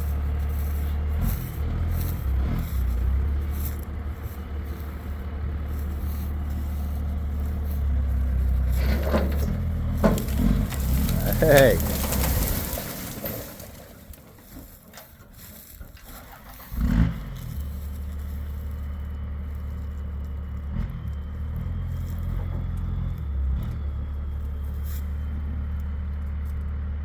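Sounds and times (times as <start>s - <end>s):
vehicle engine running at low revs: 0.0s - 27.0s.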